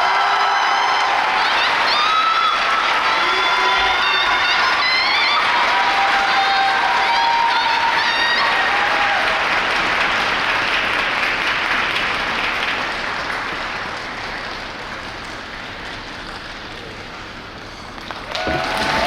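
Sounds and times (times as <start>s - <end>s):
high-pitched cheers: 0.0s - 9.6s, 18.2s - 19.0s
crowd applauding: 0.0s - 19.0s.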